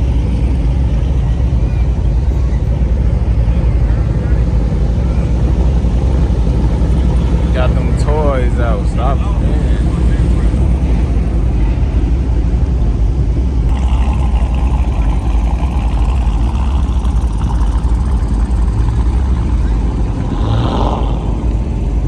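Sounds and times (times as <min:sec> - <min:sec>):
car engines rumbling: 0:00.0 - 0:22.0.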